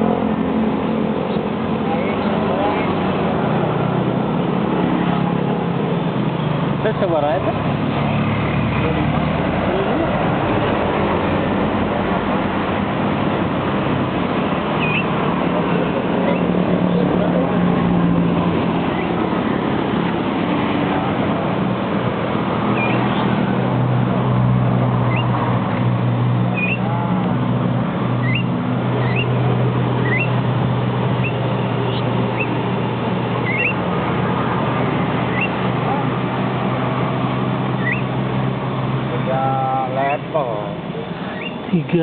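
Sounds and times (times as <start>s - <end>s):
engine hum: 0.0s - 42.0s
bird chirping: 14.7s - 15.2s, 18.8s - 19.2s, 22.7s - 23.4s, 25.0s - 25.4s, 26.5s - 26.9s, 28.2s - 29.4s, 30.0s - 30.4s, 31.2s - 32.6s, 33.4s - 33.8s, 35.2s - 35.6s, 37.7s - 38.2s, 41.1s - 41.8s.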